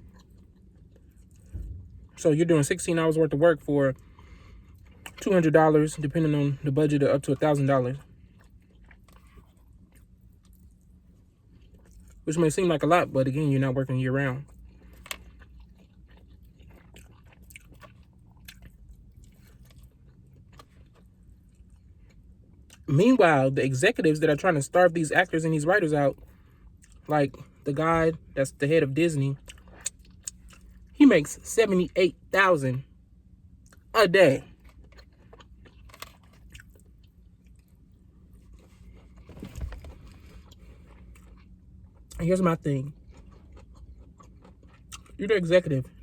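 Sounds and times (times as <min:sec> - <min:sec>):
person chewing food: 0:00.0 - 0:02.2, 0:04.0 - 0:05.4, 0:07.9 - 0:12.2, 0:14.4 - 0:22.9, 0:26.1 - 0:27.6, 0:29.4 - 0:31.0, 0:33.6 - 0:42.3, 0:42.9 - 0:45.2.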